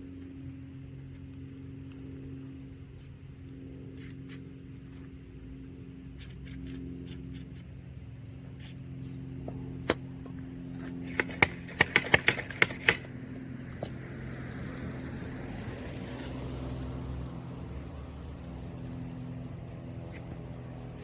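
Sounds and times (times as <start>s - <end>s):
steady low hum: 0.0s - 21.0s
sharp clicks and knocks: 9.5s - 14.0s.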